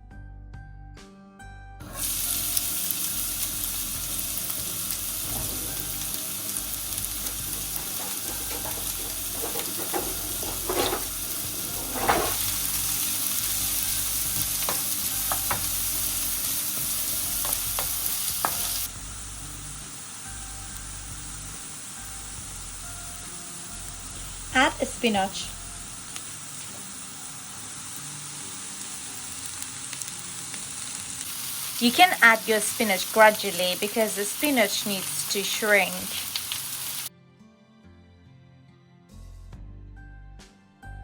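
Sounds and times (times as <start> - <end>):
soft plucked music: 1.8 - 31.0
onions sizzling in oil: 1.8 - 37.1
utensil scraping pan: 7.0 - 13.1.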